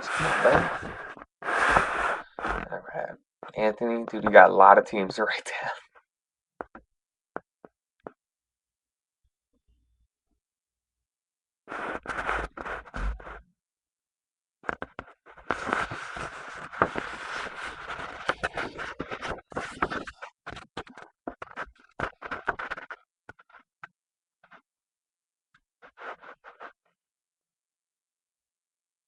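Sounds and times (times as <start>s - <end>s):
pen scratching on paper: 0.1s - 2.8s, 11.7s - 13.4s, 15.0s - 20.6s, 25.8s - 26.8s.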